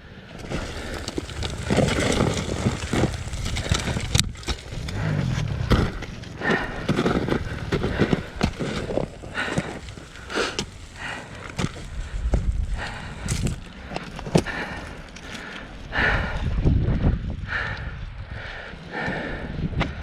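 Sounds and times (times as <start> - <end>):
footsteps on rocks and dirt: 0.4 - 15.4.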